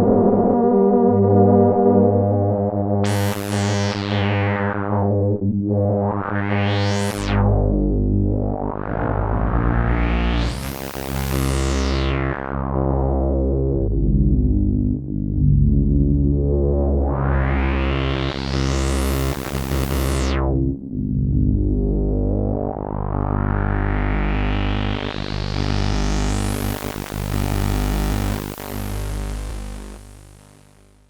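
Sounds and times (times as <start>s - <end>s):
synthesizer chords with filter sweeps: 3.0s - 31.0s.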